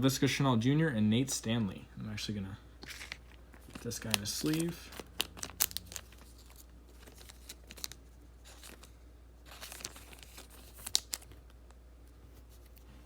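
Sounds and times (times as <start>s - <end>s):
plastic sleeve crinkling: 2.8s - 13.0s.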